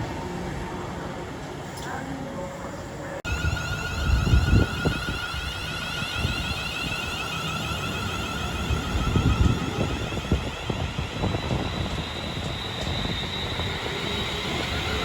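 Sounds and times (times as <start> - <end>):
train passing at speed: 0.0 - 1.7, 2.3 - 15.0
wind buffeting microphone: 3.3 - 7.2, 7.8 - 15.0.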